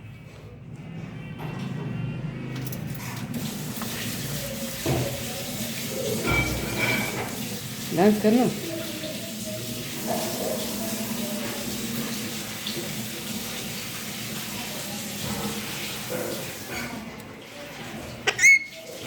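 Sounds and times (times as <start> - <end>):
parrot squawk: 18.2 - 18.9.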